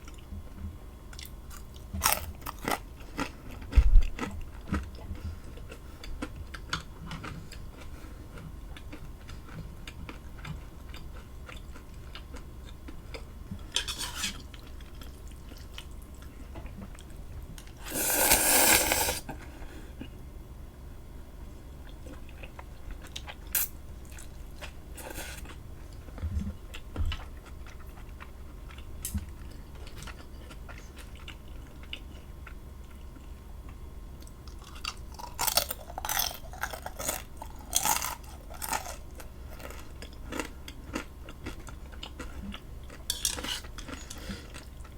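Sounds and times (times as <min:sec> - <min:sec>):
chewing and biting: 0:26.7 - 0:44.9.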